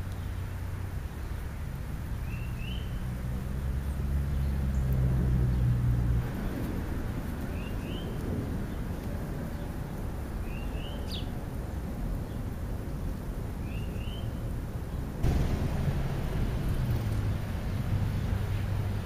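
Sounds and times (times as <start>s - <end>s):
low engine hum: 0.0s - 9.5s, 14.4s - 19.0s
outdoor noise: 0.0s - 19.0s
bird chirps: 2.2s - 3.0s, 10.4s - 11.3s, 13.6s - 14.4s.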